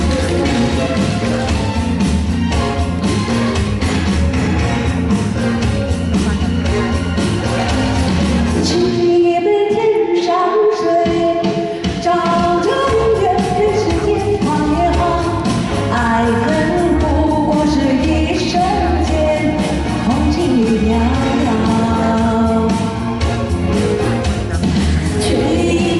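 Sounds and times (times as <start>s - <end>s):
band accompaniment: 0.0s - 9.4s, 10.8s - 25.9s
person singing: 5.9s - 23.2s, 24.4s - 25.9s.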